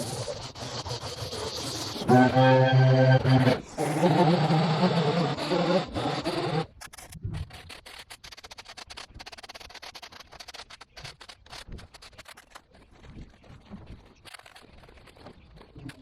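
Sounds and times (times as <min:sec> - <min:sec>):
scratching and scraping: 0:00.0 - 0:16.0
background music: 0:02.1 - 0:03.4.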